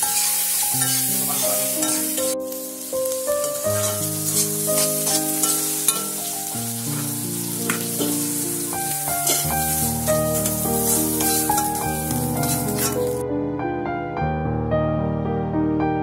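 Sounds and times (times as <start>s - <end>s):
metal spatula scraping pan: 0.0s - 2.4s, 3.5s - 6.2s, 6.9s - 8.4s, 9.2s - 13.2s
vegetables sizzling in hot oil: 0.0s - 13.2s
background music of held notes: 0.0s - 16.0s.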